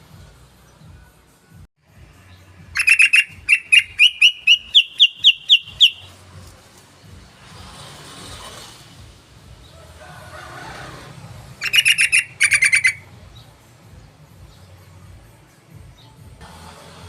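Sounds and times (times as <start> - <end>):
bird chattering calls: 2.8 - 6.2, 11.6 - 13.1.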